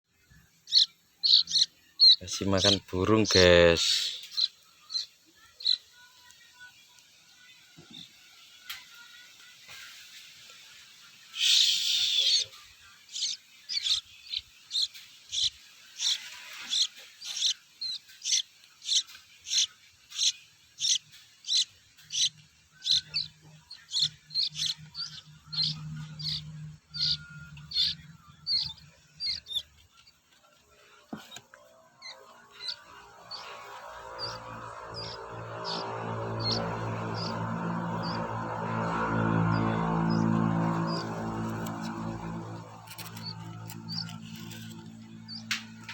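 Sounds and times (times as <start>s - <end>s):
chick begging chirps: 0.7s - 5.9s, 11.4s - 30.1s, 32.0s - 38.3s
bird harsh squawk: 11.4s - 12.5s, 13.1s - 29.7s, 32.0s - 37.4s.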